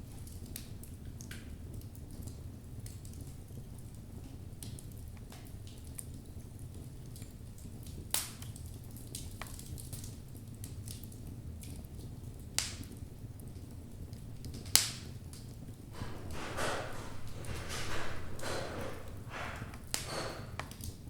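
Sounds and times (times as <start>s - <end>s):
flames rumbling in fireplace: 0.0s - 21.0s
hissing rush: 16.0s - 20.6s
wood crackling pops: 16.0s - 21.0s.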